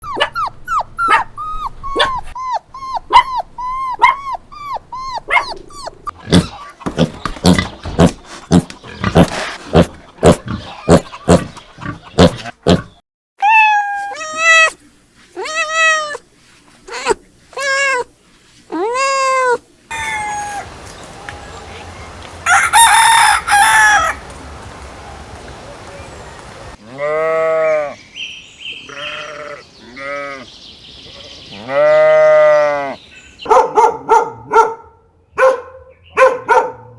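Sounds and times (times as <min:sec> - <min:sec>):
dog yipping and barking: 0:00.0 - 0:06.6, 0:13.4 - 0:14.8, 0:16.9 - 0:18.1, 0:18.7 - 0:20.8, 0:33.4 - 0:34.8, 0:35.4 - 0:36.9
cat meowing: 0:13.4 - 0:14.8, 0:15.4 - 0:16.2, 0:16.9 - 0:18.1, 0:18.7 - 0:21.2.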